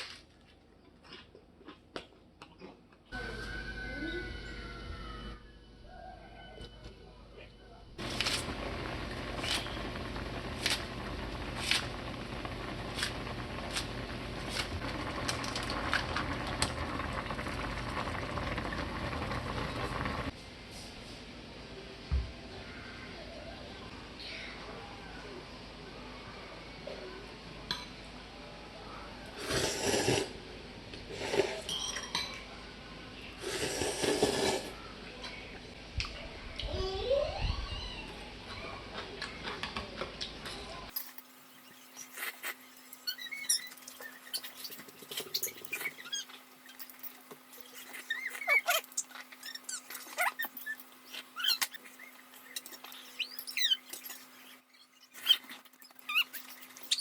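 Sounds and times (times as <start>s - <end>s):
utensils scraping and rustling: 40.9s - 57.0s.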